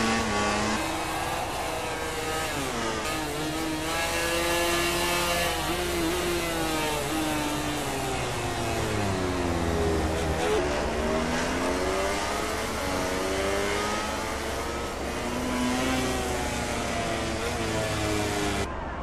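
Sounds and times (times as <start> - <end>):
racing motorcycle engines revving: 0.0 - 18.7.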